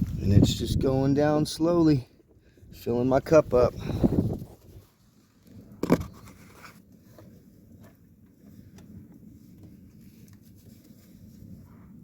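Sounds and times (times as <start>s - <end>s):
wind rumble on microphone: 0.0s - 12.0s
scraping rustle: 4.3s - 11.9s.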